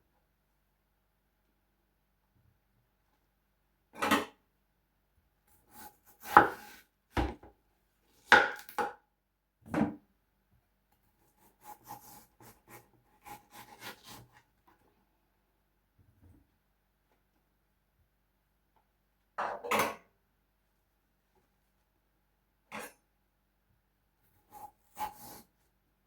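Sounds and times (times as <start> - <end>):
knife cutting watermelon: 5.6 - 6.9, 11.3 - 14.4, 24.5 - 25.5.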